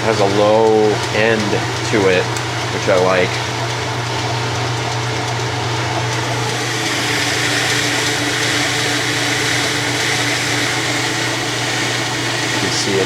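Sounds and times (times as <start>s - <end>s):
washing machine spinning hum: 0.0s - 13.0s
steady hiss: 6.4s - 13.0s.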